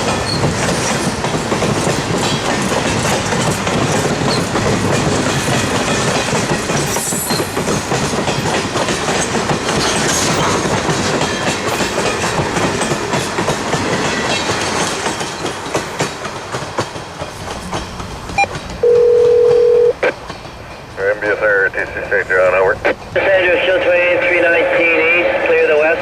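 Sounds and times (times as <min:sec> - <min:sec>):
train wheels clacking over rail joints: 0:00.0 - 0:18.8, 0:20.2 - 0:21.2.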